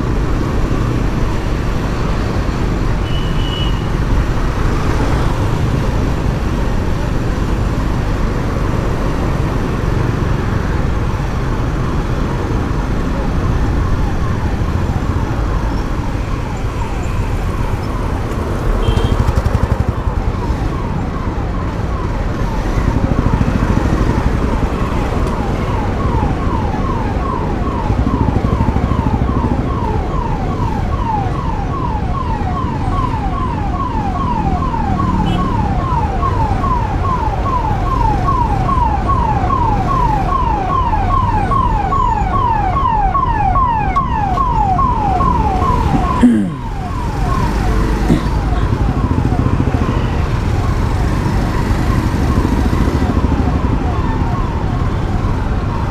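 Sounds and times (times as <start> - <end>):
road and wind rumble: 0.0 - 55.9
siren wailing: 19.8 - 55.9.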